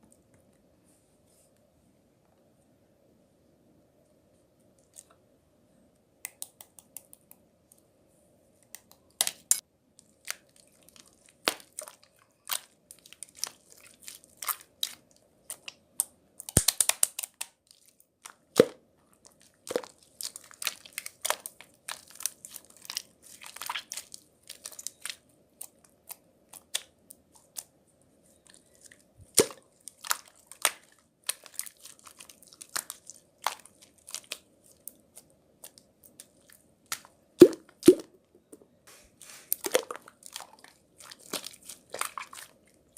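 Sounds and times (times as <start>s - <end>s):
handling crackles and crinkles: 8.7s - 37.2s, 38.9s - 42.9s.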